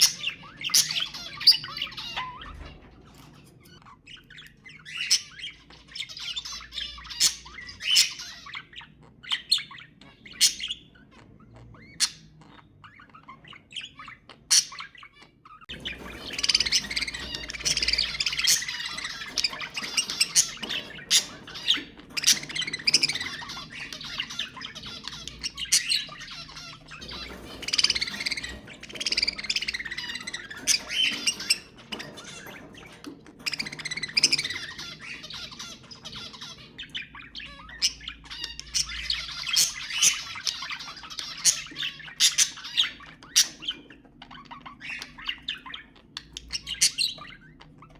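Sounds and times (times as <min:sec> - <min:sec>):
budgerigars chattering and squawking: 0:00.0 - 0:47.9.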